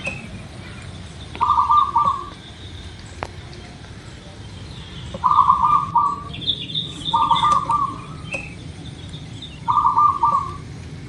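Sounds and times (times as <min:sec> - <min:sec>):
small bird chirping: 0:00.0 - 0:10.7
dove cooing in trilled phrases: 0:01.4 - 0:02.4, 0:05.2 - 0:08.5, 0:09.6 - 0:10.7.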